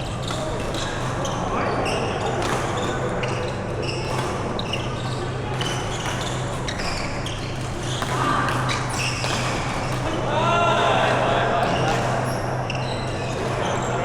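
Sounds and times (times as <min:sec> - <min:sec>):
shoe squeaks on court floor: 0:00.1 - 0:10.2, 0:11.6 - 0:14.0
racket hitting shuttlecock: 0:02.4 - 0:12.4, 0:13.2 - 0:13.9.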